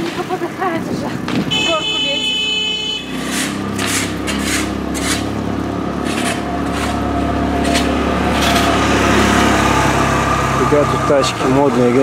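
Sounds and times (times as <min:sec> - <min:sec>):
short scraping rushing noises: 0:03.1 - 0:05.4.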